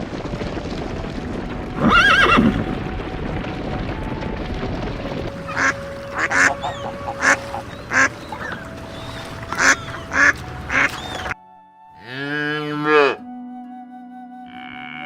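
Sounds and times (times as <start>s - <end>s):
goose honking: 5.4s - 11.4s, 12.0s - 13.2s.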